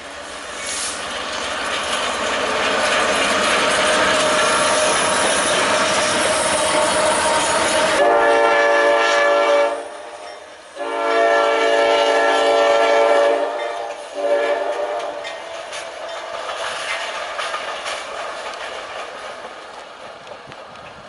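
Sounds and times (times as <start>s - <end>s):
train wheel noise: 0.0s - 21.0s
locomotive air horn blasts: 6.6s - 15.3s.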